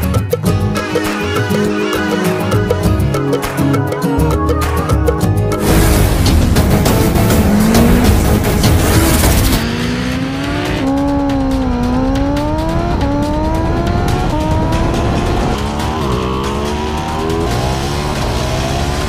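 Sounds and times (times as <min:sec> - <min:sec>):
motorcycle engines accelerating: 0:05.6 - 0:19.0.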